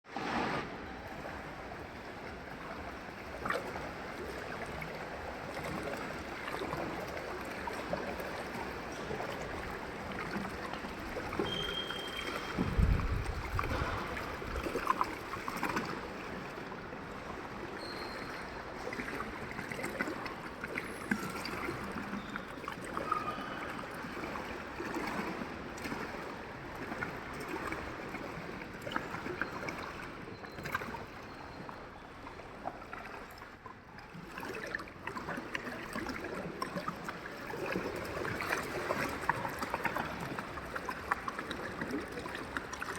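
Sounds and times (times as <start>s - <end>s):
pool water splashing and trickling: 0.0s - 42.9s
low thump: 12.6s - 14.4s.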